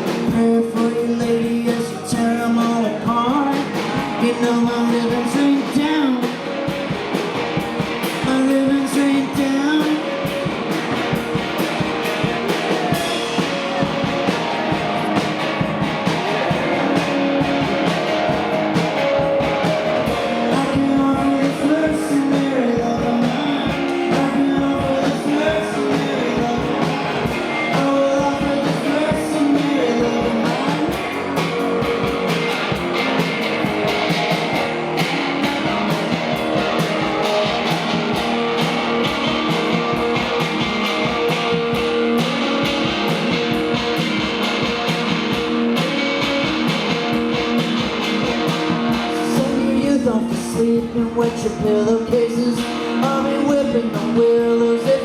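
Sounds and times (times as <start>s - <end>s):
rock band playing instrumental: 0.0s - 55.0s.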